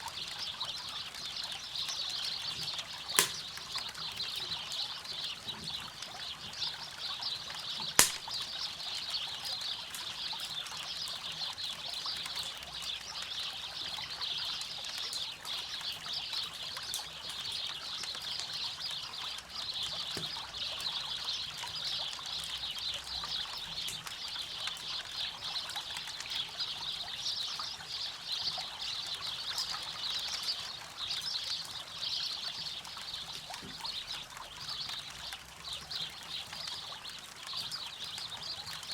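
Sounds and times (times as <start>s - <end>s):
campfire crackling: 1.2s - 5.4s, 6.8s - 12.3s.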